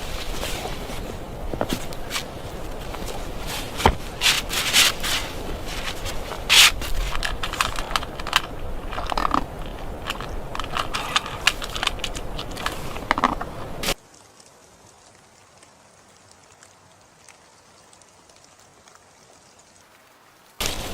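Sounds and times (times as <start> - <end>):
scraping and crunching strokes: 0.0 - 14.0
background hiss: 0.0 - 20.9.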